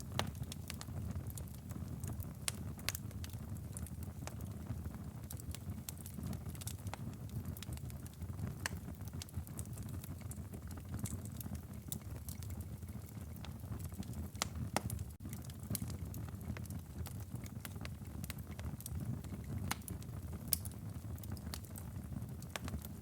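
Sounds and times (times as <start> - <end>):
firewood crackling and popping: 0.0 - 23.0
low rumble of flames: 0.0 - 23.0.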